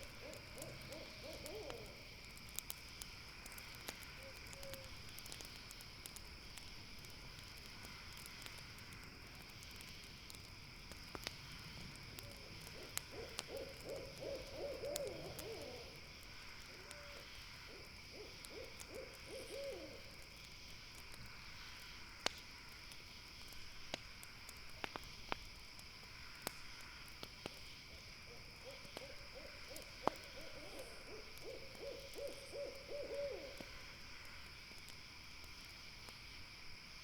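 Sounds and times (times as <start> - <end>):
campfire crackling: 0.0 - 37.0
owl hooting: 0.2 - 2.0, 12.8 - 16.0, 16.8 - 20.1, 28.3 - 33.6.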